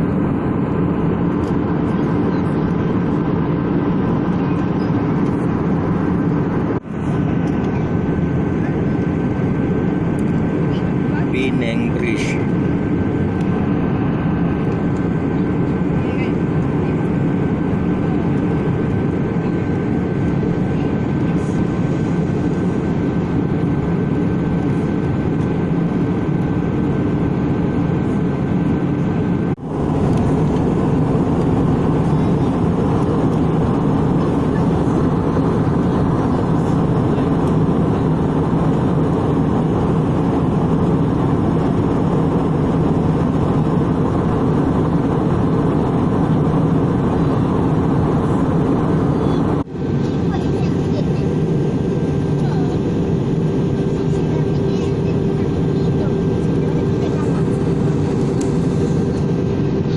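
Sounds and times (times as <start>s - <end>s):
aircraft cabin engine noise: 0.0s - 59.9s.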